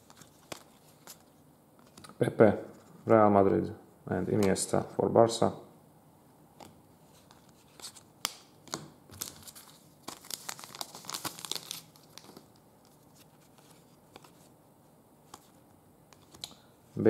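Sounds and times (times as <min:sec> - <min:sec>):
plastic packaging crinkling: 0:08.7 - 0:14.4.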